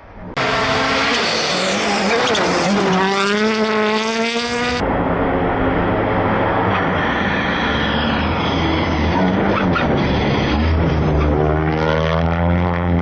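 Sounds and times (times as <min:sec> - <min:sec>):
rally car engine accelerating: 0:00.3 - 0:13.0
tyre squeal: 0:01.0 - 0:03.1.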